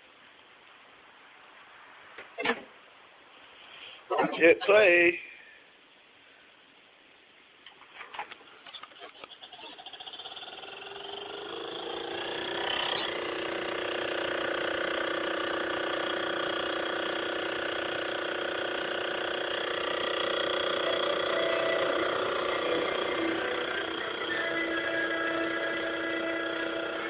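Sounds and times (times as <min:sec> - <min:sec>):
videodisc player drone: 0:08.8 - 0:27.0.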